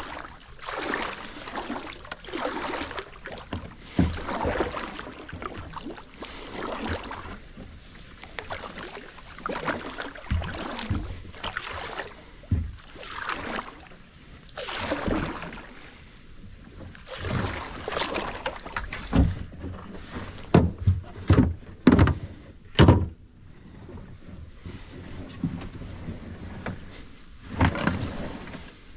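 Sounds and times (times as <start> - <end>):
kayak paddle swishing through water: 0.0 - 28.9
sharp hollow knocks: 22.8 - 23.2.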